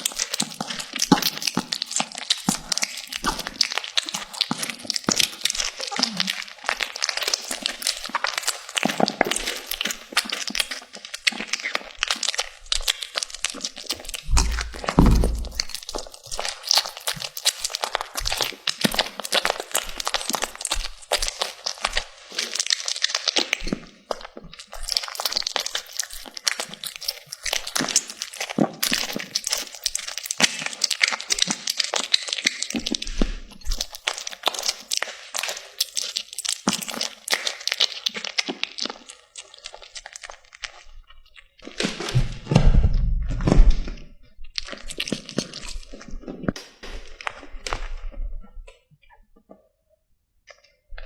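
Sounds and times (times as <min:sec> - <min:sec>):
cats crunching dry food: 0:00.0 - 0:42.2, 0:43.4 - 0:48.2
low bumping noise: 0:14.3 - 0:15.8.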